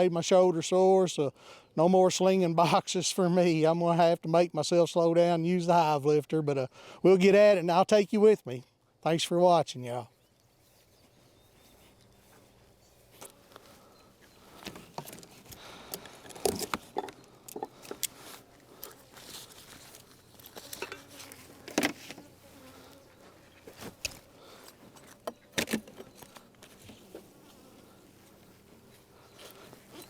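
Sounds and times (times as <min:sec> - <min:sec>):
honeybees buzzing: 0:10.6 - 0:30.0.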